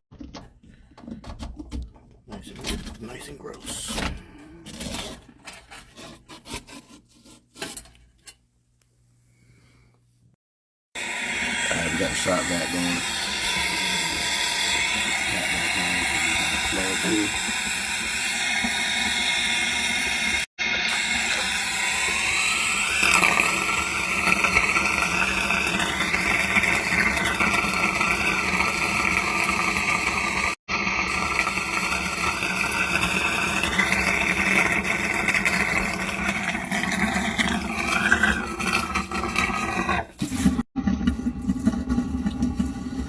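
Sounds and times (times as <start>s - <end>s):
shop vacuum sucking water: 10.9s - 43.0s.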